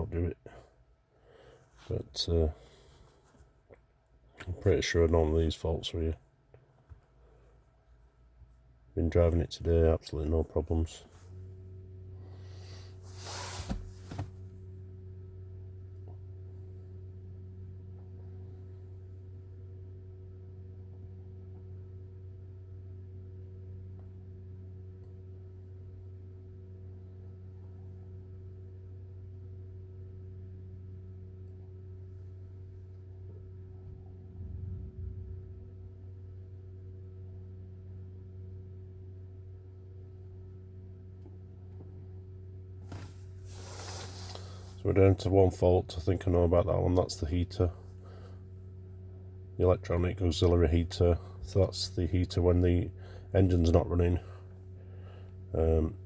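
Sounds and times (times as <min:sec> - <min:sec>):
low electrical hum: 0:00.0 - 0:56.0
brief low rumble: 0:33.6 - 0:36.6.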